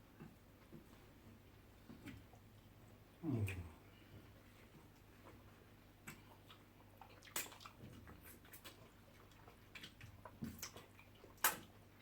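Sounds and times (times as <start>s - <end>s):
wet chewing and smacking: 4.6s - 12.0s.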